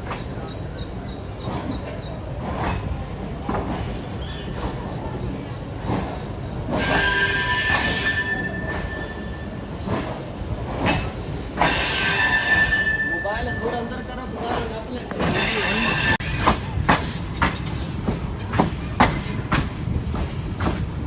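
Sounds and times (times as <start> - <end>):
train rumble: 0.0 - 21.0
high wheel squeal: 6.7 - 9.9, 11.3 - 14.0, 15.2 - 19.5
train wheels knocking over rail joints: 14.4 - 21.0.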